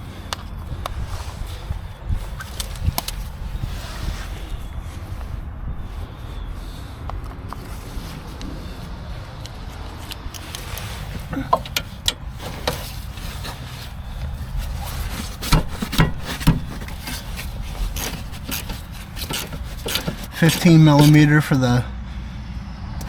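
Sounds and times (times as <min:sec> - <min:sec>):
hand tools clicking and scraping: 0:09.4 - 0:21.8.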